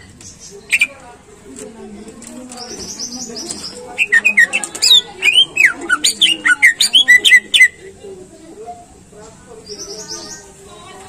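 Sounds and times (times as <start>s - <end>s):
high fast bird trill: 2.7s - 7.8s
bird singing whistled notes: 4.0s - 7.8s.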